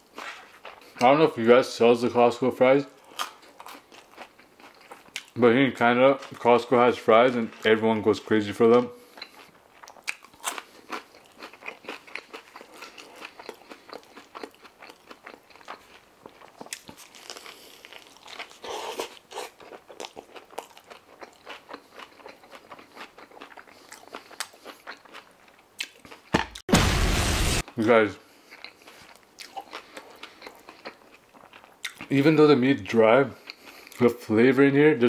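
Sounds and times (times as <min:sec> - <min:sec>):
person chewing fries: 0:00.0 - 0:01.2, 0:03.0 - 0:05.4, 0:08.6 - 0:26.3, 0:28.3 - 0:34.1
biting into a wrap: 0:09.1 - 0:26.3.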